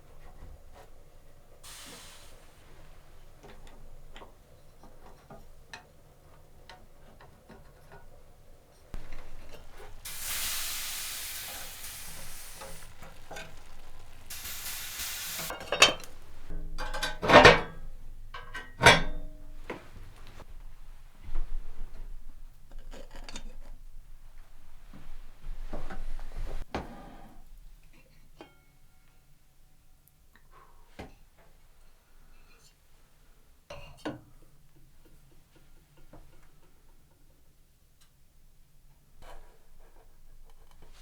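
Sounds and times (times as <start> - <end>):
loud sizzling hiss: 1.6 - 3.4, 9.0 - 16.8.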